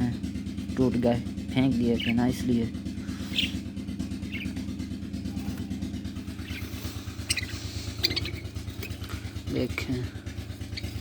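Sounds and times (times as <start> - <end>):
small engine running: 0.0 - 11.0
budgerigars chirping: 1.6 - 4.7, 6.3 - 9.9, 10.5 - 11.0.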